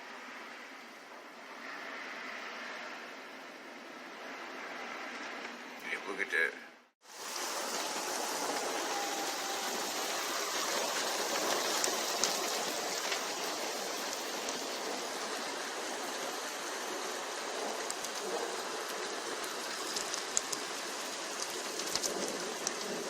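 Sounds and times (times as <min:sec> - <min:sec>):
heavy rain falling: 0:07.0 - 0:23.0.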